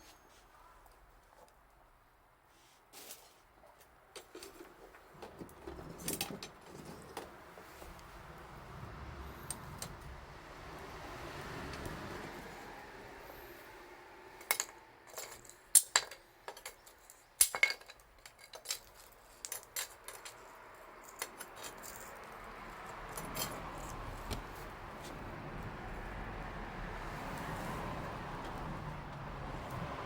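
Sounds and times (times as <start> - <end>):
small hard objects clinking: 14.4 - 24.3.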